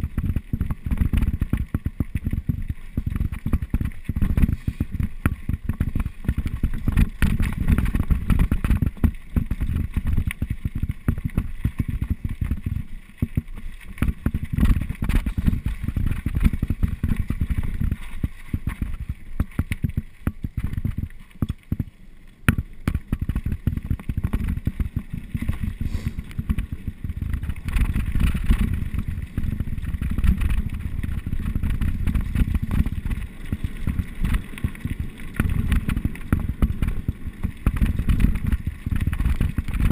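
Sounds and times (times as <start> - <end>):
wind buffeting microphone: 0.0 - 21.8, 22.8 - 39.9
mountain bike rattling on trail: 0.0 - 39.9.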